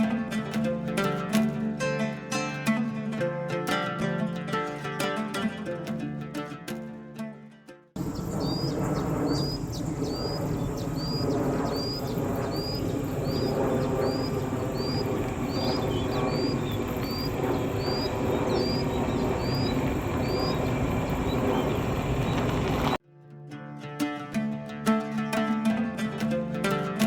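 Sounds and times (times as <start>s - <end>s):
bird high rising call: 8.0s - 23.0s
low background rumble: 8.0s - 23.0s.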